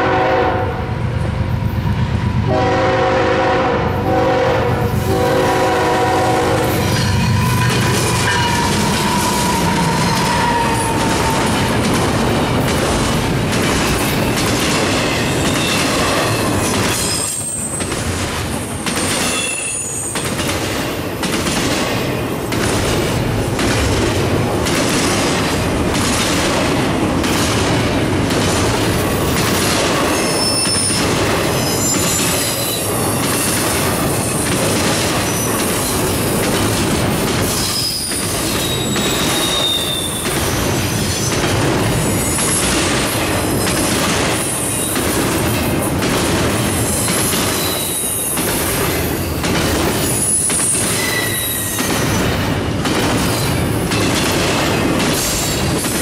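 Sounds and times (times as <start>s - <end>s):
train wheels rumbling on rail: 0.0s - 56.0s
high-pitched wheel squeals: 6.9s - 11.1s, 19.2s - 20.2s, 30.2s - 31.0s, 31.6s - 32.9s, 37.7s - 40.3s, 50.2s - 51.9s.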